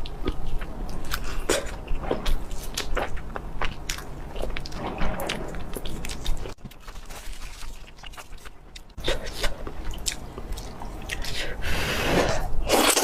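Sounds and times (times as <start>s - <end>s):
person chewing food: 0.0s - 13.0s
crisp crunches: 4.6s - 9.0s.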